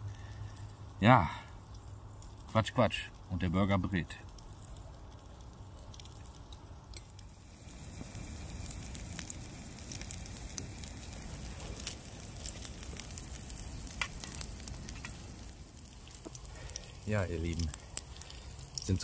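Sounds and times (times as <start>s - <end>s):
burger patty sizzling in a pan: 7.0s - 19.0s.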